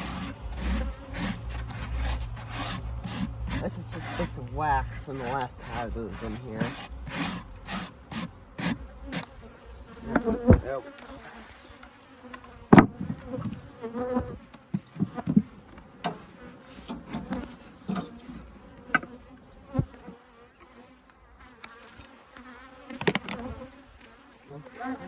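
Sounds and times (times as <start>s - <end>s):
honeybees buzzing: 0.0s - 25.0s
wooden hive parts knocking: 10.0s - 10.7s, 22.9s - 23.6s.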